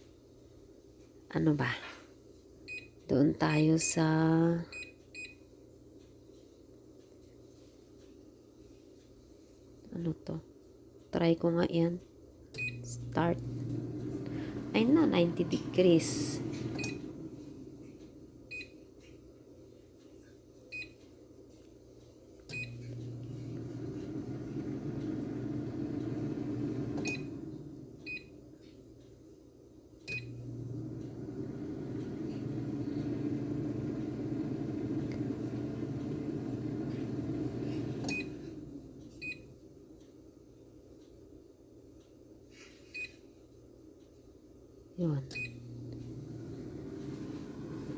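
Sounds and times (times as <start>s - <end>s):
air fryer fan running: 11.4s - 19.0s, 22.4s - 40.5s, 44.5s - 47.9s
air fryer beeping: 12.6s - 18.9s, 22.5s - 28.6s, 30.0s - 39.7s, 45.2s - 47.9s.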